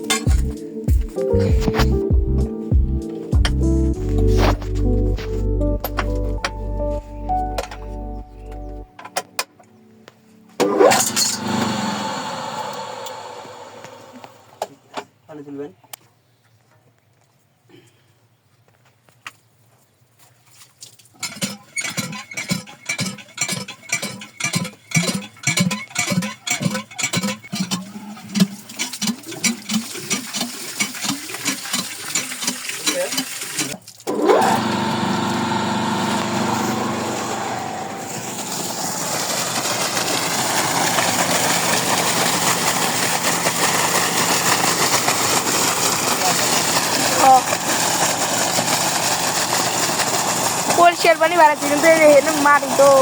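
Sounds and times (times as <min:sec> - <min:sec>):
electric water pump motor running: 0:00.0 - 0:00.6, 0:10.6 - 0:14.7, 0:21.2 - 0:53.0
rhythmic pulsing: 0:00.0 - 0:08.9
water rushing: 0:10.7 - 0:14.6, 0:28.6 - 0:53.0.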